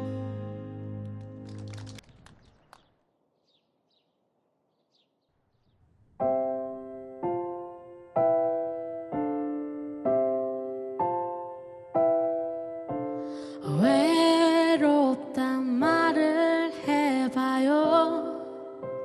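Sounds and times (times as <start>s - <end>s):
piano chords ringing: 6.2s - 19.0s.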